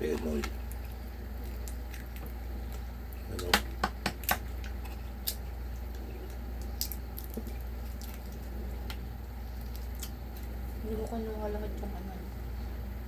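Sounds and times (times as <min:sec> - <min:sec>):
steady low hum: 0:00.0 - 0:13.0
chewing clicks and smacks: 0:00.1 - 0:09.0.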